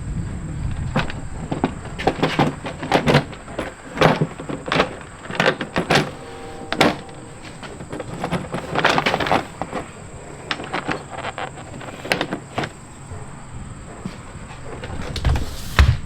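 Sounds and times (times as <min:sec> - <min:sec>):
engine cowling knocking and clattering: 0:00.0 - 0:06.4.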